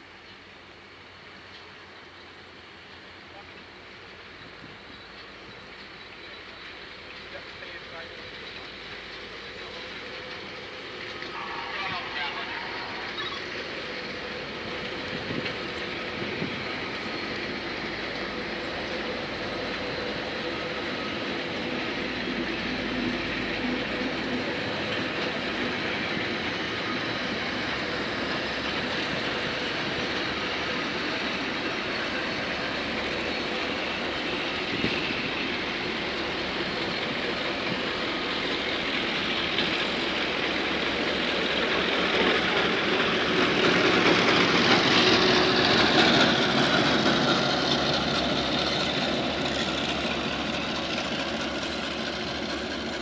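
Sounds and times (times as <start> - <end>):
wheels rumbling on rail: 0.0 - 53.0
high tone sliding down: 11.3 - 13.9.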